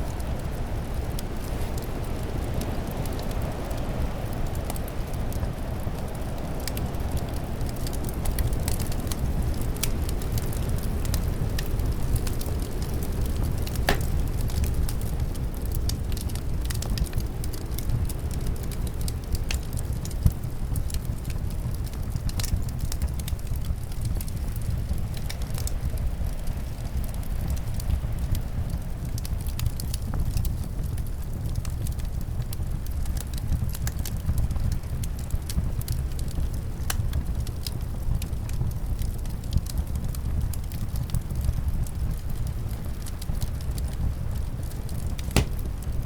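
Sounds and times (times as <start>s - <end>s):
low rush of wind: 0.0s - 20.7s
wood fire crackling: 0.0s - 46.0s.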